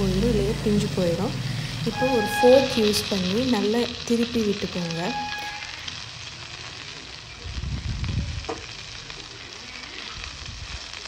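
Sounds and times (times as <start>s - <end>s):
prawns sizzling in oil: 0.0s - 11.0s.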